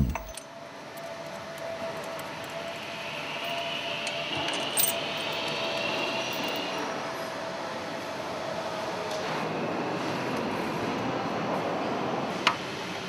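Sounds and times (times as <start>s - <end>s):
light metallic clinks: 0.0s - 0.4s
machinery hum with whine: 0.0s - 13.0s.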